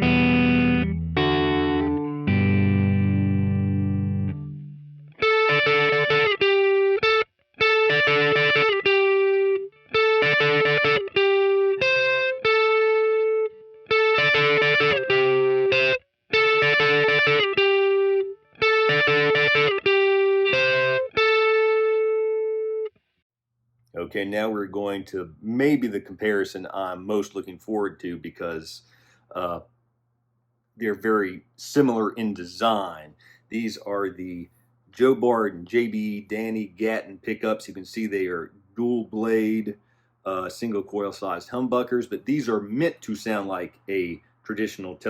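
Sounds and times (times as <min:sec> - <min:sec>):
overdriven electric guitar: 0:00.0 - 0:22.9.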